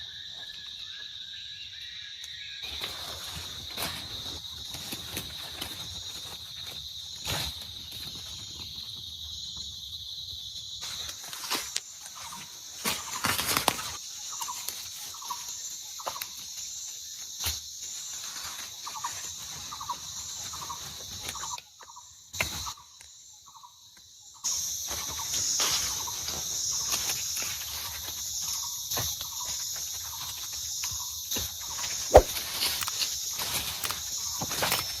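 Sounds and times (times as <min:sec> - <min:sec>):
high-pitched insect chorus: 0:00.0 - 0:35.0
short repeated animal calls: 0:32.1 - 0:32.9.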